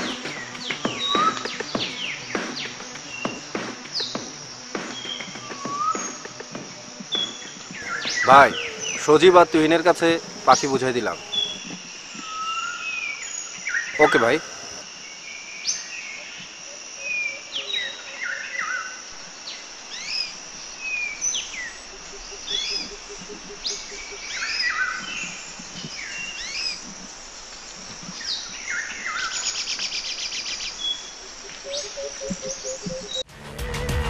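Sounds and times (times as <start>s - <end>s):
loud music: 0.0s - 6.9s, 33.3s - 34.0s
bird trill: 0.0s - 14.4s, 19.9s - 26.8s, 28.2s - 33.3s
birds chirping: 0.0s - 33.3s
outdoor ambience hiss: 0.0s - 34.0s.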